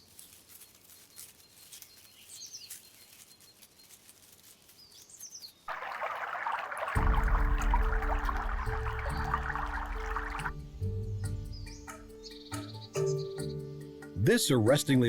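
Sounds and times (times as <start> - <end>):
running water rushing: 5.7 - 10.6.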